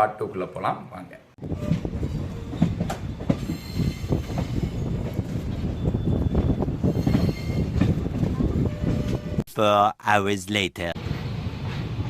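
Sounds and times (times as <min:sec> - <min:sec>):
train rumbling on rails: 0:01.4 - 0:09.4, 0:11.0 - 0:12.0.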